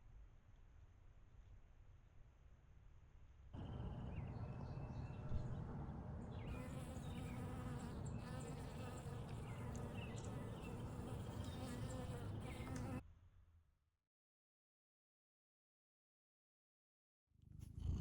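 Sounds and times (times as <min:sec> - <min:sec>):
flying insect buzzing: 0:06.5 - 0:13.0.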